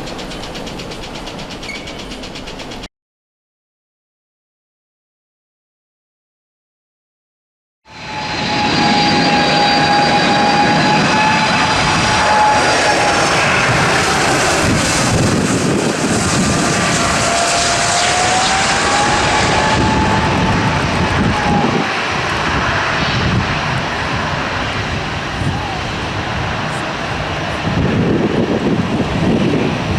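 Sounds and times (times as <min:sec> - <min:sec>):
jet engines roaring: 0:07.9 - 0:29.9.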